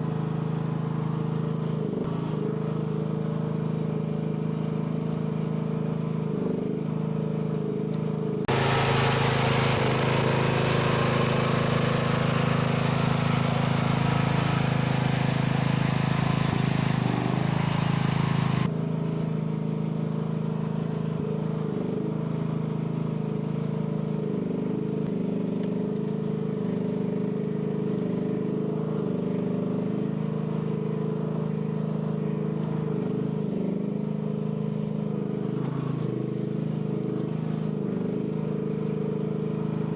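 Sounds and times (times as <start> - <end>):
excavator engine running: 8.5 - 18.7
hissing engine noise: 8.5 - 18.7.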